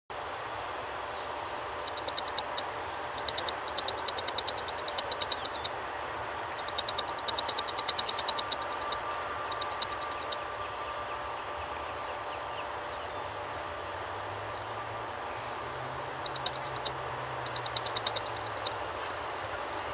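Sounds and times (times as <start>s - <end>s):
faint steady whine: 0.1s - 19.9s
distant jet engine: 0.2s - 19.9s
rapid high clicking chirps: 1.8s - 5.8s, 6.5s - 10.6s, 16.2s - 19.9s.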